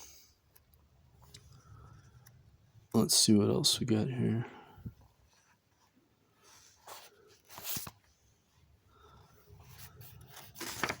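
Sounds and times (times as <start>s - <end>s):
book pages rustling: 5.2s - 8.4s, 9.1s - 11.0s.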